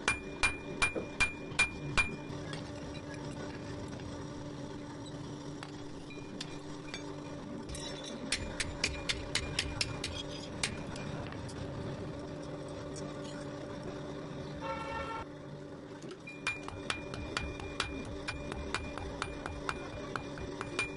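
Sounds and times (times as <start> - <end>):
hammer strikes on steel: 0.0 - 2.2, 8.3 - 11.0, 16.4 - 20.9
steady hum: 0.0 - 20.9.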